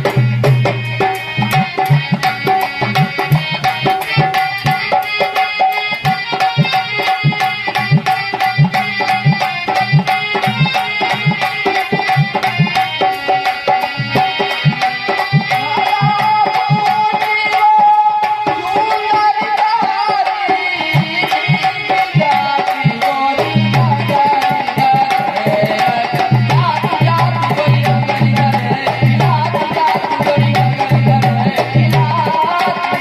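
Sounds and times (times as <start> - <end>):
dholak drum rhythm: 0.0 - 33.0.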